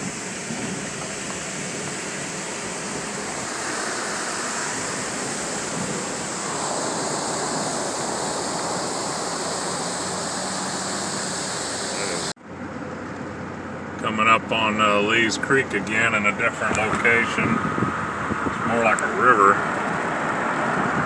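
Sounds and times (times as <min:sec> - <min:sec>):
waterfall rushing water: 0:00.0 - 0:12.4.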